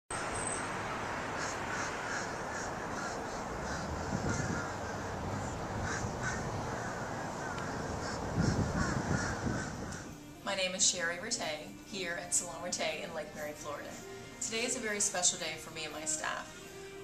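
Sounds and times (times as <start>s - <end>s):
steady background noise: 0.1s - 10.5s
birds calling: 0.2s - 10.3s.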